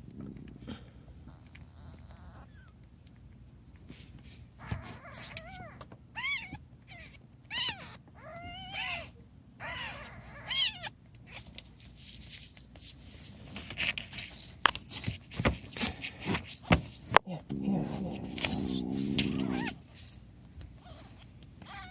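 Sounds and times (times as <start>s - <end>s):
newborn kittens mewing: 0.4s - 2.8s, 4.6s - 11.5s, 17.2s - 20.2s, 20.8s - 21.9s
rustling: 11.3s - 21.9s.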